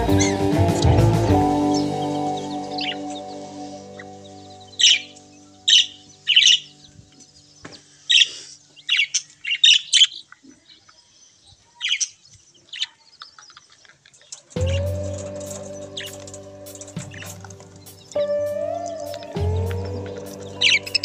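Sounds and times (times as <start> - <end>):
background music: 0.0 - 7.6, 14.6 - 21.0
small birds chirping: 0.0 - 21.0.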